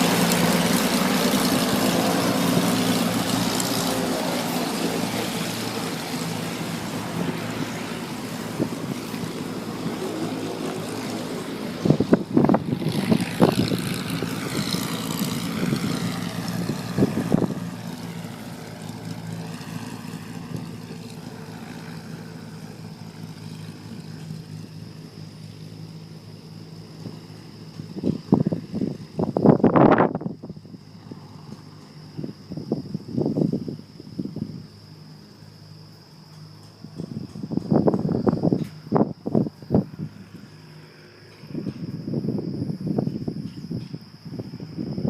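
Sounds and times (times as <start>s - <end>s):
twin piston engines running: 0.0s - 29.2s.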